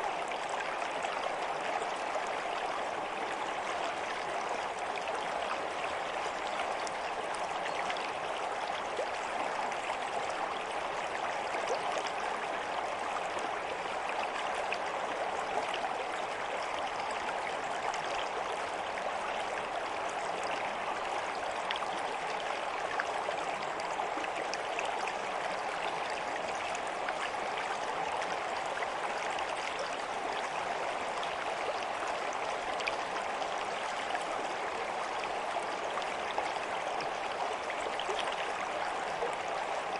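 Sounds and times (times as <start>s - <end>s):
stream of water flowing: 0.0s - 39.9s.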